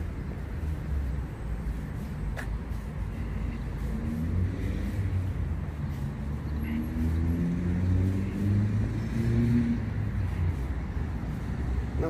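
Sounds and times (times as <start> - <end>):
car engine accelerating: 3.8 - 10.1.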